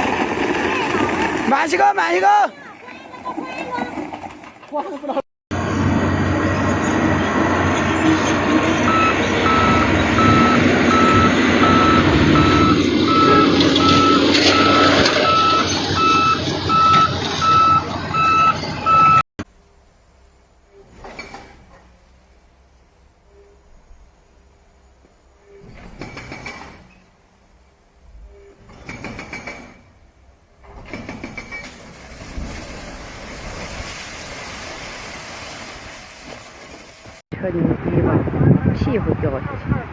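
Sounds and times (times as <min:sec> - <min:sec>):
truck rushing noise: 0:00.0 - 0:19.2, 0:24.4 - 0:39.9
heavy truck engine running: 0:05.5 - 0:19.2
reversing alarm beeping: 0:08.8 - 0:19.2.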